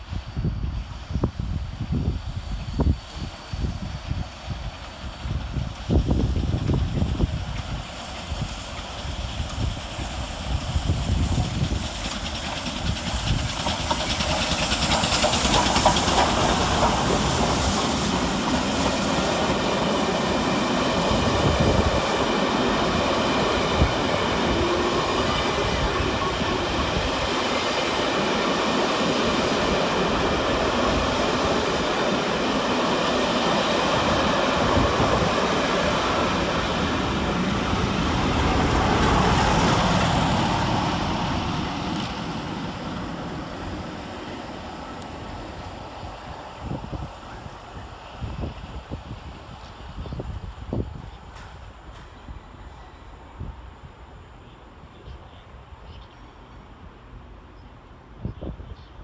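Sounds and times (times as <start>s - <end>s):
train wheels rumbling on rails: 0.0s - 55.9s
clickety-clack over rail joints: 4.6s - 19.9s, 51.3s - 52.2s.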